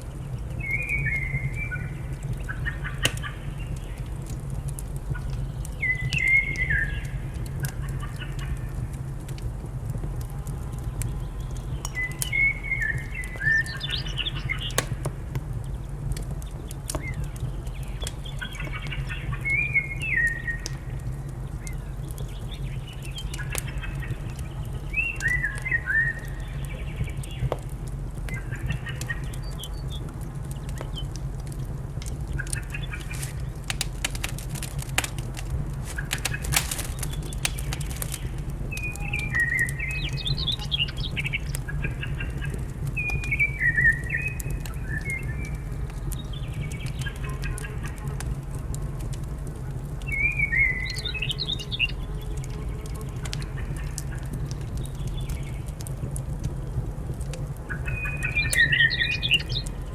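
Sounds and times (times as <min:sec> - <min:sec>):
wood fire crackling: 0:00.0 - 0:59.9
birds chirping: 0:32.6 - 0:38.4.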